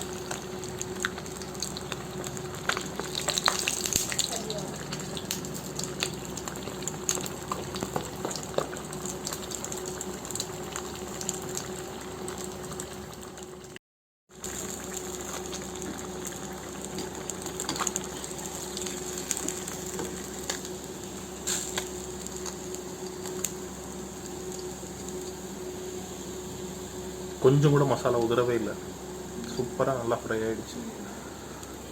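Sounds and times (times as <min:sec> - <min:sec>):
oil crackling and popping: 0:00.0 - 0:23.6
fish sizzling in hot oil: 0:00.0 - 0:27.8.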